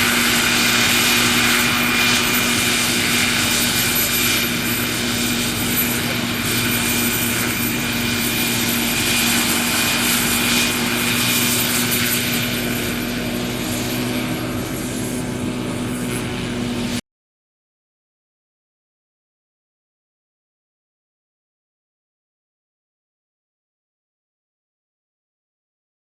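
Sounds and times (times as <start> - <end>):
model helicopter rotor drone: 0.0 - 17.0.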